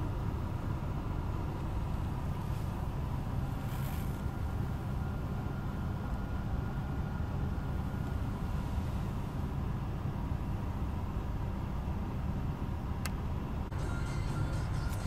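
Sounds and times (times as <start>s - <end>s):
car engine idling: 0.0s - 15.0s
click: 13.0s - 13.2s.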